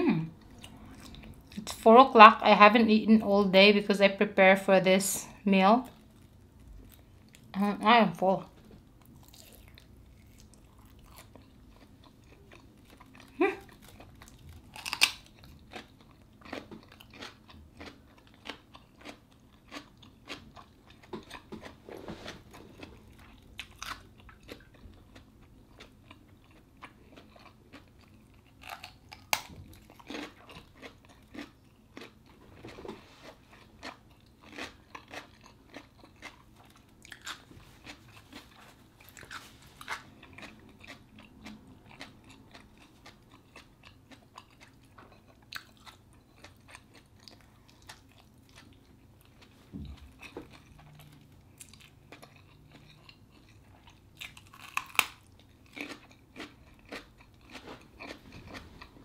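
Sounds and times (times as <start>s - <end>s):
crunchy chewing: 9.0s - 59.0s.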